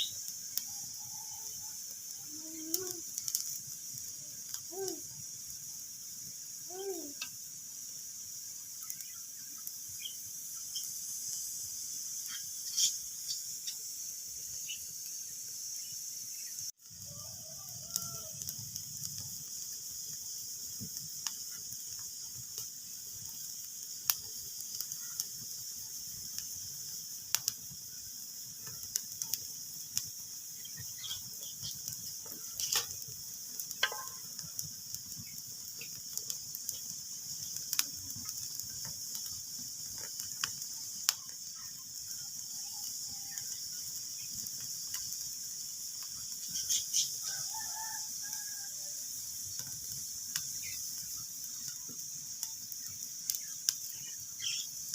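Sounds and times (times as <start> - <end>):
fire popping: 0.0 - 54.9
wood fire crackling: 0.0 - 54.9.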